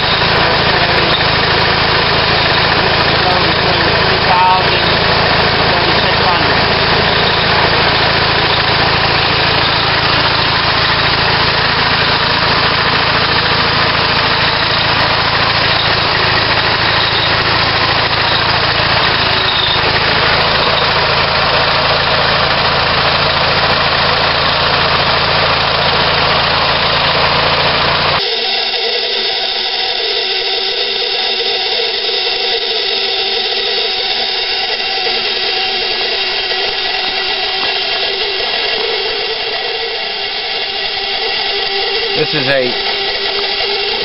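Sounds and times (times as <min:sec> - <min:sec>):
compressor running with hum and hiss: 0:00.0 - 0:44.0.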